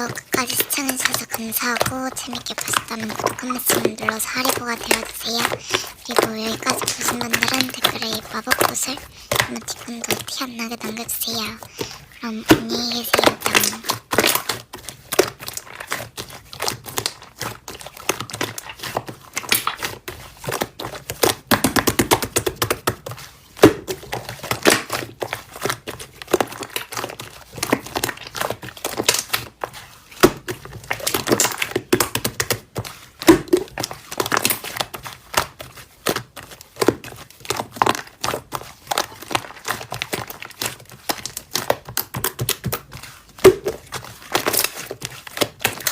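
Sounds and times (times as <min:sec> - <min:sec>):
slime being squished: 0:00.0 - 0:45.9.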